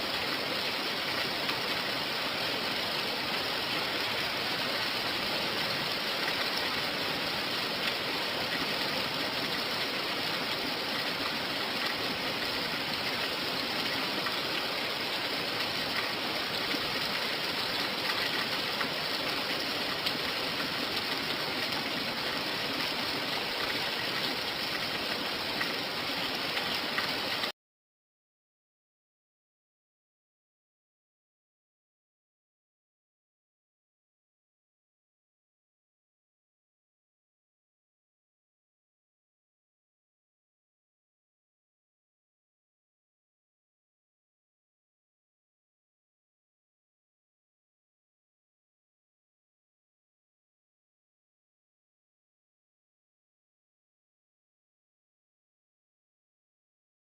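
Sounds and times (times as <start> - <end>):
steady rain falling: 0.0 - 27.5.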